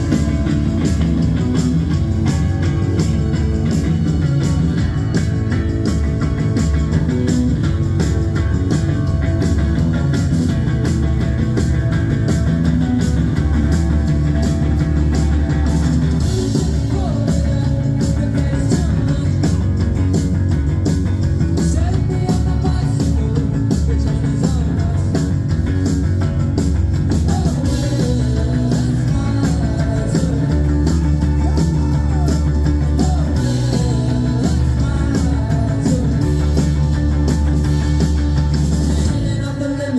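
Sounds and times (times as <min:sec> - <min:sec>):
live rock band playing: 0:00.0 - 0:39.9
person singing: 0:16.2 - 0:19.8, 0:21.6 - 0:25.5, 0:27.2 - 0:39.9.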